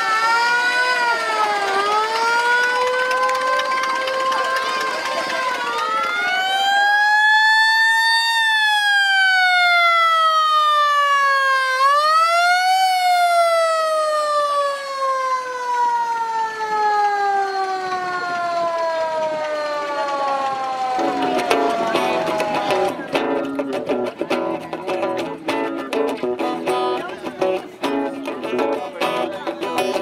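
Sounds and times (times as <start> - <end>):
siren rising and falling: 0.0 - 23.0.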